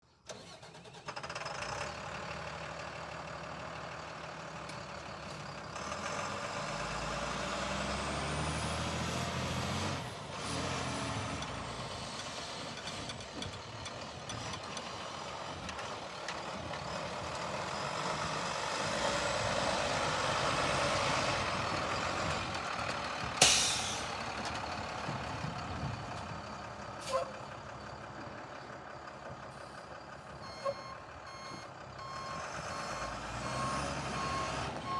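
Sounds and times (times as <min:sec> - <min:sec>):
diesel truck engine revving: 0:00.3 - 0:34.9
air brake hiss: 0:23.4 - 0:24.2.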